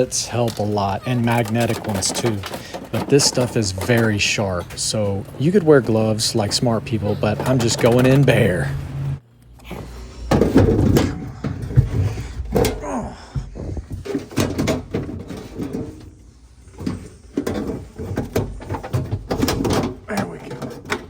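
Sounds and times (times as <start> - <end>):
clicks and scraping of parts: 0.0 - 12.8, 13.6 - 21.0.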